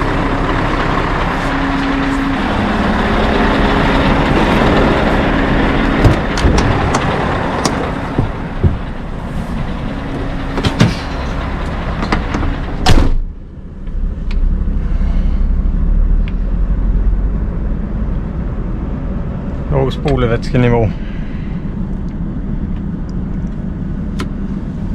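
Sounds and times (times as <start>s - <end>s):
diesel truck engine idling: 0.0s - 24.9s
door slam: 12.8s - 13.3s.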